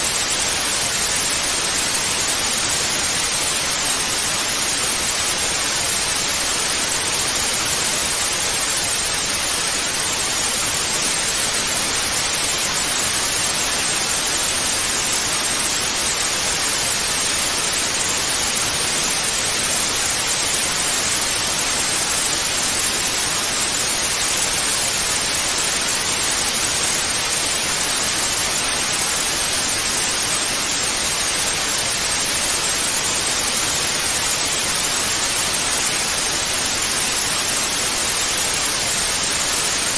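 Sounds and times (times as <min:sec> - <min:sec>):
tv static hiss: 0:00.0 - 0:39.9.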